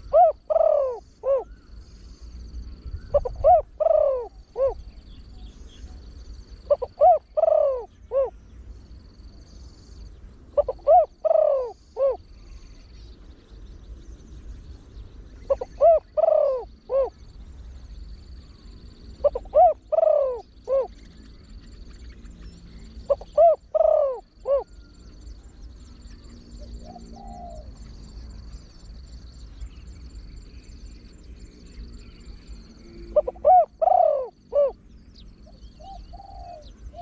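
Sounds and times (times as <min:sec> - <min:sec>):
dove cooing: 0:00.0 - 0:01.8, 0:02.9 - 0:08.4, 0:10.4 - 0:12.5, 0:15.3 - 0:17.3, 0:18.5 - 0:25.3, 0:26.2 - 0:28.0, 0:32.4 - 0:34.8, 0:35.4 - 0:37.0.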